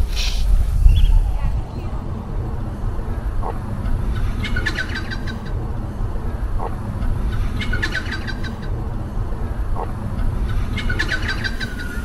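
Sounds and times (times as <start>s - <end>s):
bird low call: 0.0s - 2.3s
low rumble: 0.0s - 12.0s
bird high chirps: 0.2s - 1.9s, 10.5s - 12.0s.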